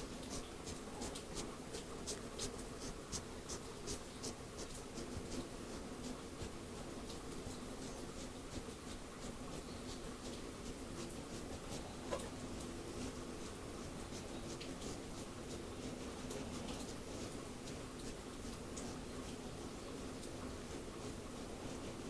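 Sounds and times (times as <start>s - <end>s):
scratchy strokes through hair: 0.0s - 19.8s.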